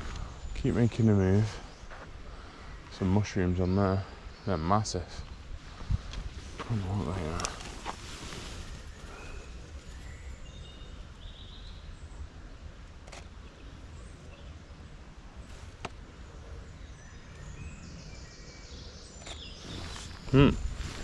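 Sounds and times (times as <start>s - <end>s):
bird chirps: 16.5s - 21.0s.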